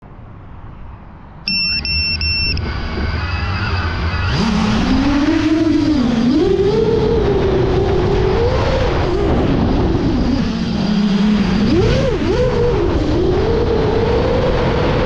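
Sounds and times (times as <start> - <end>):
short electronic beeps: 1.5 - 2.9
drone motors humming: 1.5 - 13.9.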